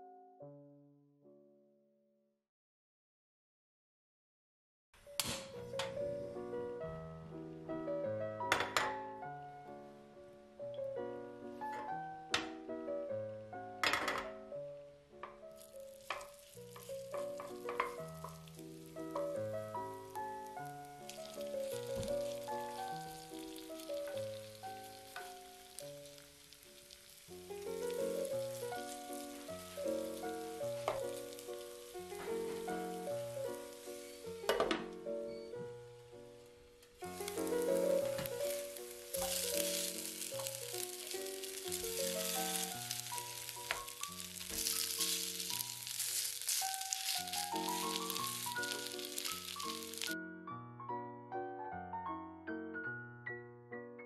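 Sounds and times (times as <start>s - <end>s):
background music of held notes: 5.0s - 15.6s, 16.7s - 54.0s
wooden spatula turning food: 15.5s - 34.5s, 36.9s - 50.2s
batter sizzling in frying pan: 15.5s - 34.6s, 36.4s - 50.2s.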